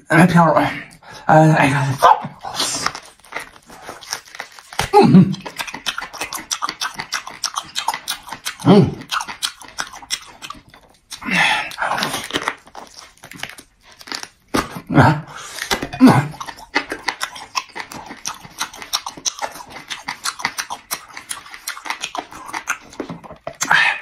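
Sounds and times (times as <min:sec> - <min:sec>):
man chewing meat: 0:01.9 - 0:24.0
man grunting: 0:04.9 - 0:05.4, 0:08.6 - 0:09.0.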